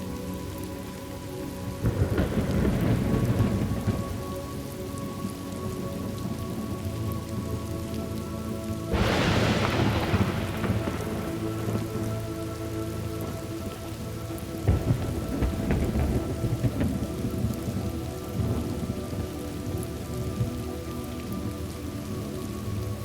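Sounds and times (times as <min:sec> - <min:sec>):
steady rain: 0:00.0 - 0:23.0
thunder: 0:01.8 - 0:04.6, 0:08.9 - 0:21.5.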